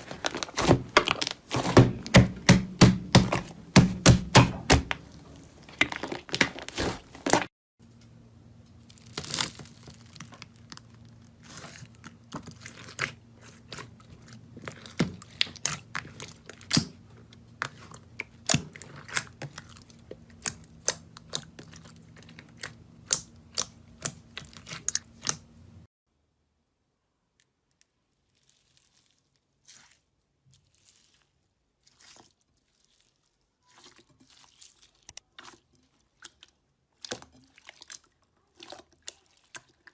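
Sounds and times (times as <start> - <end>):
slime crackling and popping: 0.0 - 7.5, 8.8 - 13.9.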